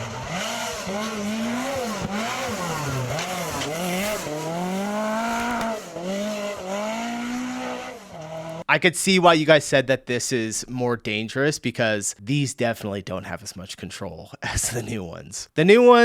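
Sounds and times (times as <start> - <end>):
rally car engine revving: 0.0 - 8.7.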